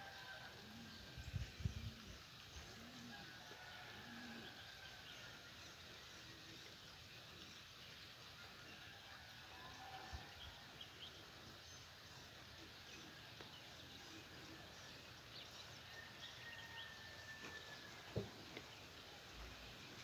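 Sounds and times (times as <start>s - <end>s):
faint birdsong: 0.0s - 20.0s
soft thump: 18.2s - 18.4s.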